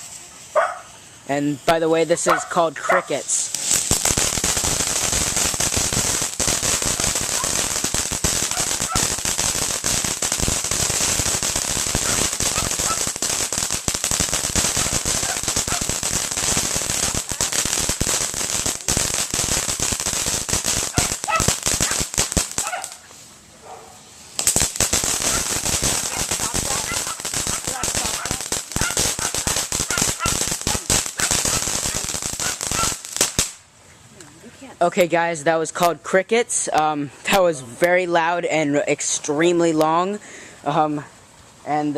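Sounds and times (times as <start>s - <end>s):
firecrackers popping: 0.0s - 0.5s, 1.2s - 23.2s, 24.3s - 33.7s
dog barking: 0.6s - 0.9s, 2.3s - 3.2s, 8.5s - 9.1s, 21.0s - 22.0s, 22.6s - 23.0s, 23.6s - 24.0s.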